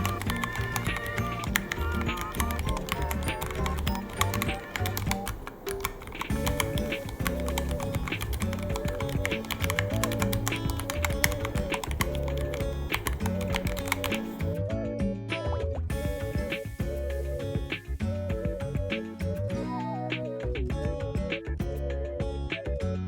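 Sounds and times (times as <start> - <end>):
mechanical keyboard key clicks: 0.0 - 14.2
background music: 0.0 - 23.0.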